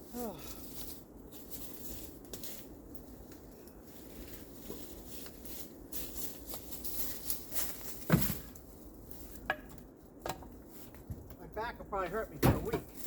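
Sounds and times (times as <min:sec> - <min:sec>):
rustling: 0:00.0 - 0:09.5.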